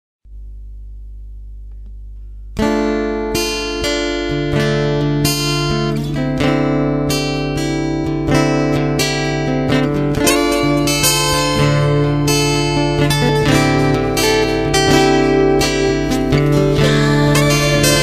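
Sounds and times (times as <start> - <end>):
steady low hum: 0.3 - 2.7
guitar plucked chords: 0.3 - 18.0.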